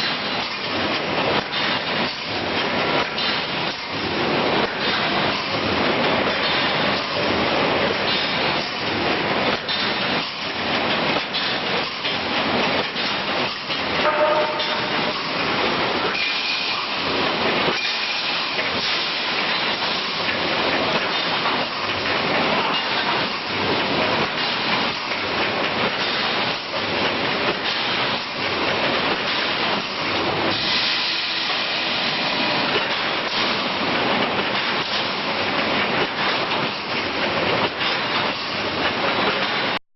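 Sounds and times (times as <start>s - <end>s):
welding machine clattering: 17.7s - 31.0s.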